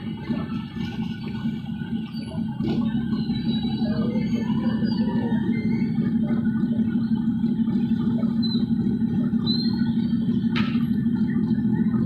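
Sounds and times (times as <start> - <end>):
road noise: 0.0 - 12.0
vehicle engine drone: 0.0 - 12.0.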